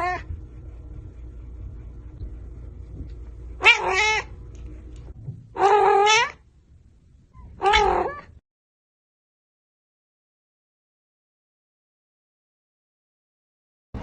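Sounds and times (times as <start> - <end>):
cat meowing: 3.6 - 4.3, 5.6 - 6.4, 7.4 - 8.4.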